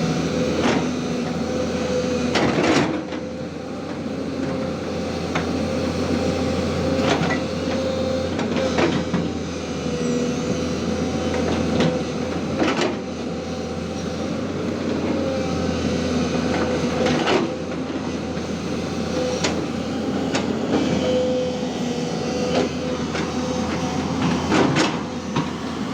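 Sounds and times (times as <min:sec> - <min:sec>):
excavator diesel engine running: 0:00.0 - 0:25.9.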